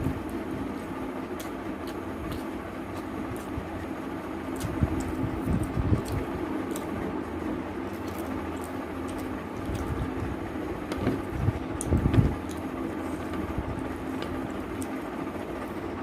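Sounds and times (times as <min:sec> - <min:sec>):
background hum: 0:00.0 - 0:16.0
chewing: 0:00.7 - 0:15.0.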